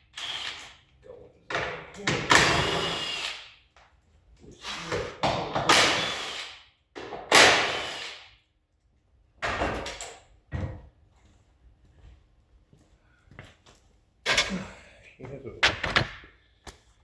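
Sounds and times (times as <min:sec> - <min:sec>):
car parts knocking and clattering: 0:15.6 - 0:16.4.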